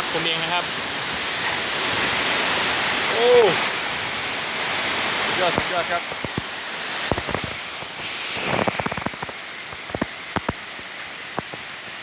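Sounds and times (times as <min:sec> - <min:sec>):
heavy rain pouring: 0:00.0 - 0:12.0
gusting wind: 0:00.7 - 0:11.8.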